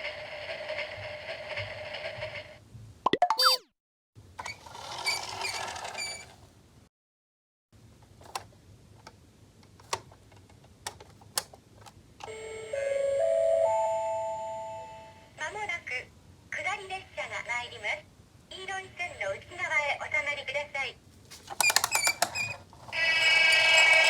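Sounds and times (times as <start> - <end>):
electronic chime: 12.3 - 15.3.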